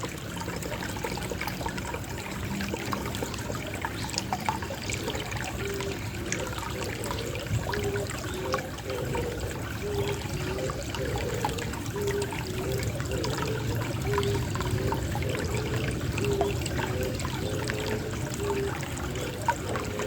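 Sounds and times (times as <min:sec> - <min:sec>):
water trickling: 0:00.0 - 0:20.0
pigeon cooing: 0:04.8 - 0:20.0.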